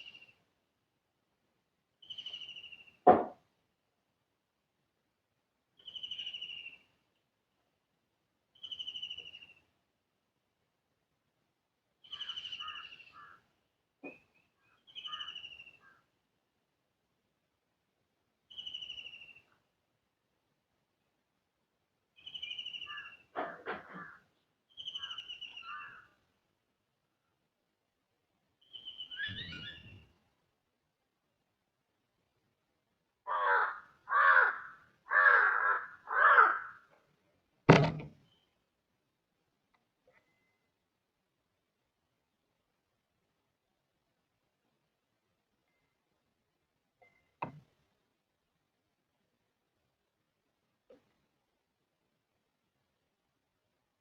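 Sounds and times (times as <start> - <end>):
short bird chirps: 2.0 - 3.0, 5.8 - 6.9, 8.6 - 9.7, 12.0 - 13.4, 14.1 - 16.0, 18.5 - 19.6, 22.2 - 23.3, 24.7 - 26.1, 28.6 - 30.2, 38.2 - 38.6
sharp knock: 3.0 - 3.4, 37.7 - 38.1
crow cawing: 12.2 - 13.4, 22.9 - 24.2, 25.0 - 26.2, 33.3 - 36.9
bird trilled call: 14.9 - 16.0, 28.6 - 30.0.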